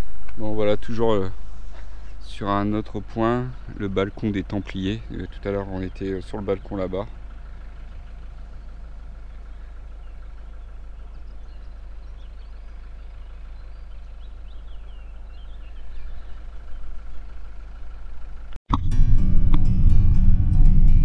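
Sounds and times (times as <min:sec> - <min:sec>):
vehicle engine idling: 0:00.0 - 0:18.6
faint high chirping calls: 0:03.5 - 0:18.5.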